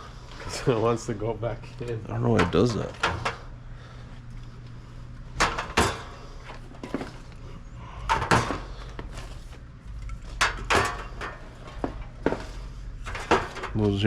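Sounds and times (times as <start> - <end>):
steady low hum: 0.0 - 14.0
products and trays knocking: 11.8 - 12.6.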